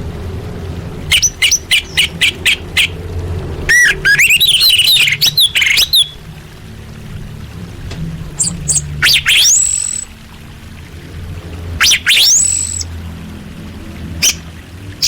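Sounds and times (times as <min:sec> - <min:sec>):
low steady hum: 0:00.0 - 0:15.0
thrush twittering warble: 0:01.0 - 0:15.0
bird high call notes: 0:01.1 - 0:03.0, 0:03.7 - 0:06.2, 0:08.4 - 0:10.1, 0:11.8 - 0:12.9, 0:14.2 - 0:14.5
thrush short chirps: 0:08.4 - 0:10.1, 0:11.8 - 0:12.9.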